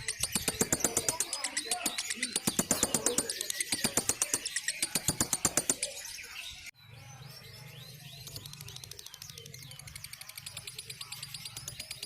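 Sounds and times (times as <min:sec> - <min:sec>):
lovebird chattering trill: 0:00.0 - 0:06.5.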